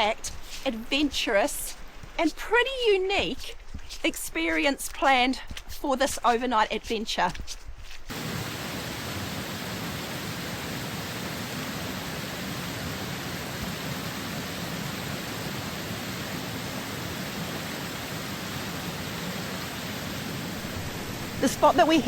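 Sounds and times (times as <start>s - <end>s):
rain: 8.1s - 22.0s
river water rushing: 8.1s - 22.0s.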